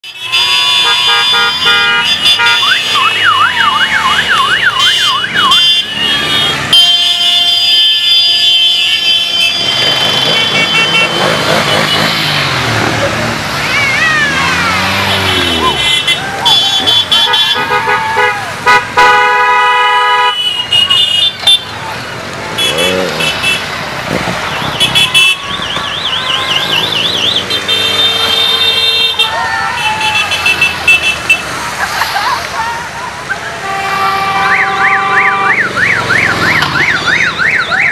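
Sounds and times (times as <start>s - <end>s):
motorcycle horn beeps: 4.8s - 12.6s, 22.6s - 23.7s, 24.8s - 29.2s, 33.6s - 35.7s
motorcycle engines running: 9.3s - 18.9s, 20.4s - 33.0s
steady horn blast: 33.6s - 35.7s
warbling alarm-like horn: 33.6s - 37.9s
electronic siren: 34.5s - 37.9s.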